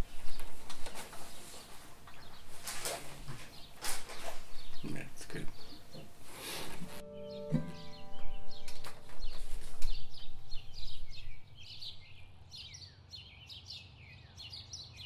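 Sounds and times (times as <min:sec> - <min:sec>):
small birds chirping: 0:00.0 - 0:15.0
acoustic guitar chord: 0:06.5 - 0:11.4.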